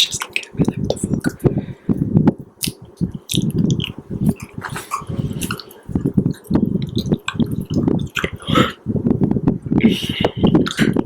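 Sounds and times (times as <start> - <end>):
wet mouth chewing sounds: 2.6 - 8.8.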